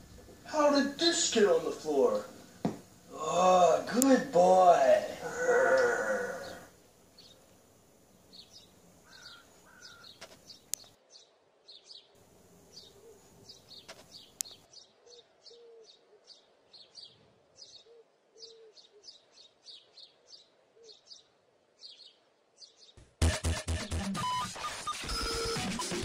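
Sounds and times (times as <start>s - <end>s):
small birds chirping: 4.0s - 23.0s.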